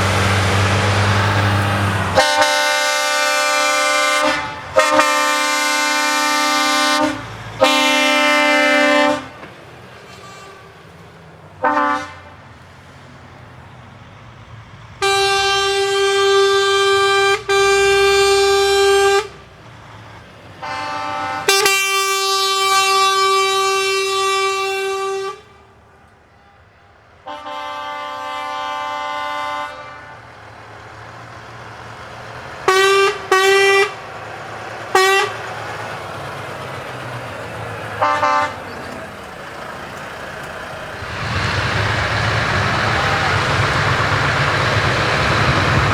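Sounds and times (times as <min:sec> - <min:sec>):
truck air horn blasts: 0:00.0 - 0:12.6, 0:15.0 - 0:19.6, 0:20.6 - 0:30.6, 0:32.6 - 0:34.2, 0:34.9 - 0:36.7, 0:37.5 - 0:45.9
faint engine rumble: 0:00.0 - 0:45.9
short horn toots: 0:00.9 - 0:09.4, 0:10.0 - 0:10.8.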